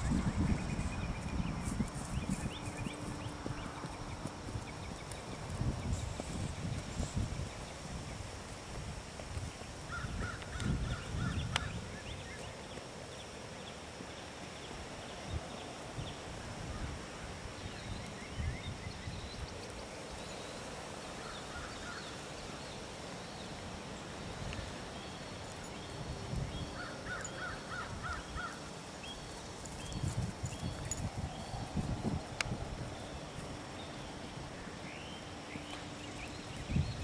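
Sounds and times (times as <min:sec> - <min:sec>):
birds calling: 0:26.6 - 0:31.5.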